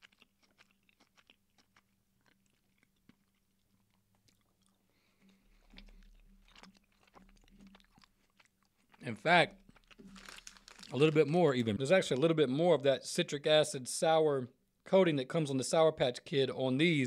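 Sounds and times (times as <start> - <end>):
wet mouth clicks: 0.0 - 9.0
chewing gummy candy: 0.0 - 12.2.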